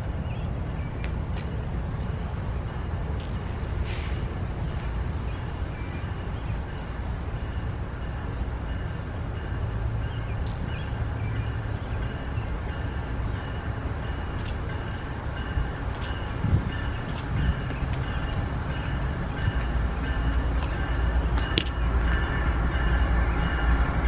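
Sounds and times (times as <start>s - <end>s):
freight train rumbling on rails: 0.0s - 24.0s
sharp clicks of train wheels: 14.2s - 22.4s.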